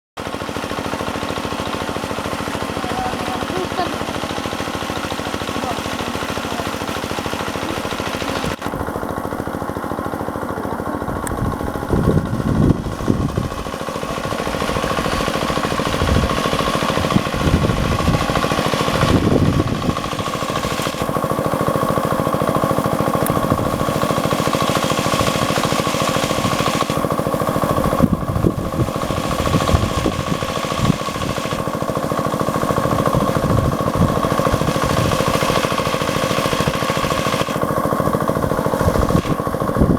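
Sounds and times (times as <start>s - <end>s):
diesel water pump running: 0.2s - 39.9s.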